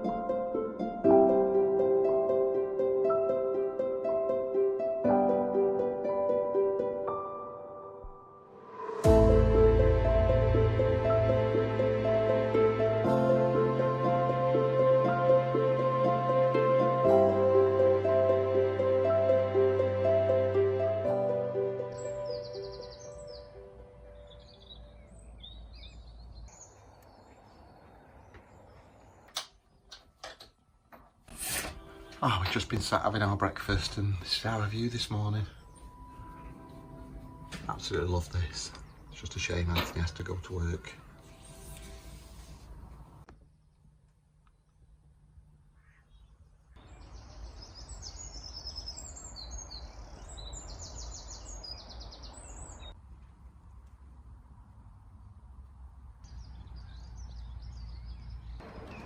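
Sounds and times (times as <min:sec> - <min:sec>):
background music: 0:00.0 - 0:25.6, 0:31.3 - 0:42.5
small birds chirping: 0:21.8 - 0:30.2, 0:32.6 - 0:42.0, 0:45.6 - 0:53.0, 0:56.1 - 0:59.0.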